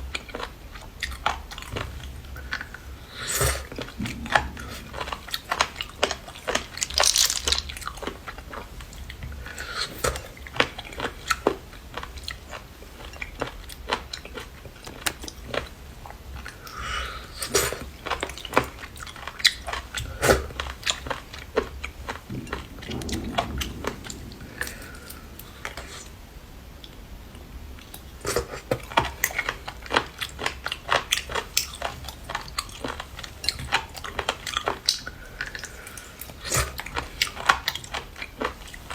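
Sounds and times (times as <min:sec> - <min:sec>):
crunchy chewing of seafood: 0:00.0 - 0:26.1, 0:27.8 - 0:38.9
wet mouth sounds: 0:02.4 - 0:07.8.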